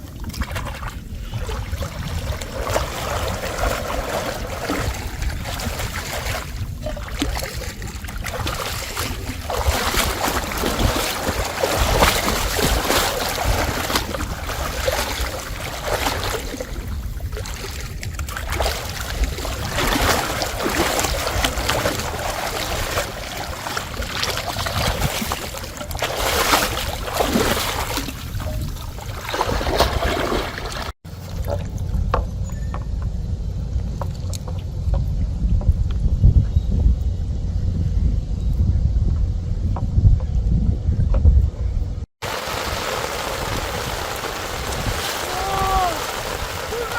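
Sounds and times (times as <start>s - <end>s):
water splashing and sloshing: 0.0s - 32.8s, 42.1s - 46.9s
wind rumble on microphone: 0.0s - 46.9s.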